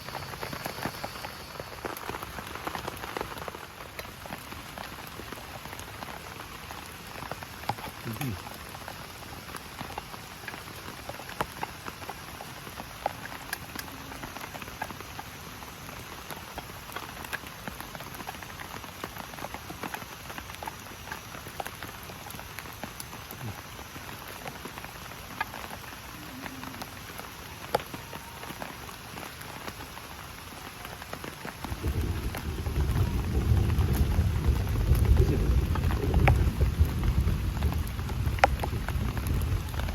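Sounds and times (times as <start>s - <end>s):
heavy rain falling: 0.0s - 39.9s
raindrops ticking on surfaces: 0.0s - 39.9s
low rumble of thunder: 31.6s - 39.9s.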